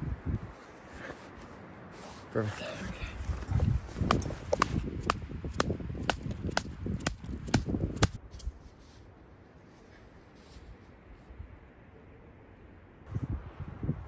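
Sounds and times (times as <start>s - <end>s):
sharp regular knocks: 4.0s - 8.2s.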